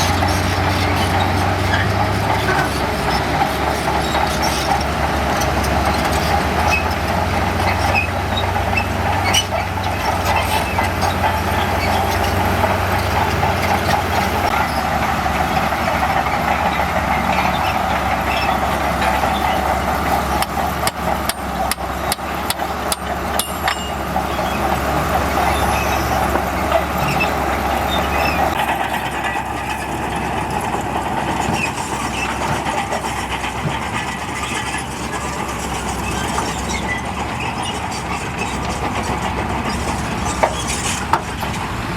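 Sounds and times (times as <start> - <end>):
bulldozer diesel engine drone: 0.0 - 41.9
sharp metallic clanks: 20.8 - 24.4.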